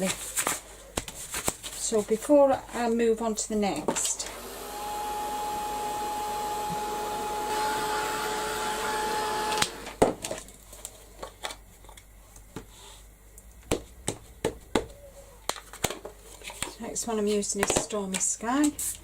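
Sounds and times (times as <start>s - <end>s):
heat tool blowing and whining: 4.2s - 10.0s.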